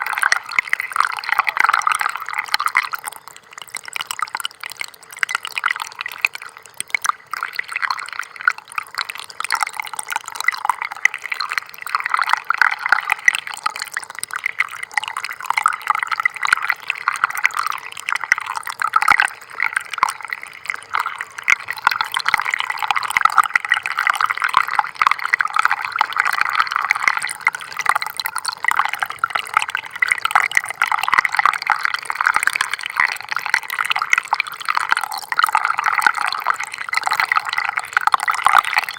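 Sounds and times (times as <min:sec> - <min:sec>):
stream trickling over stones: 0:00.0 - 0:38.9.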